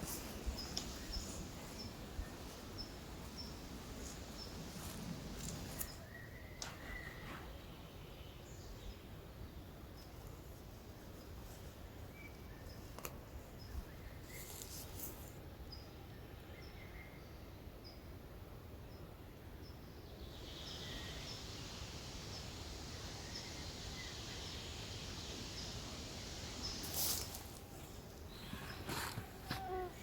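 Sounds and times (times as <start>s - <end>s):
steady high hiss: 0.0s - 15.6s, 19.0s - 30.0s
brief rustle: 26.8s - 27.7s.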